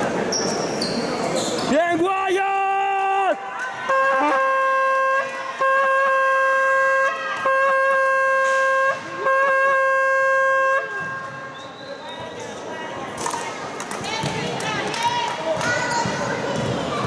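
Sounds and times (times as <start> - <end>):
horn blasts: 3.8 - 11.6.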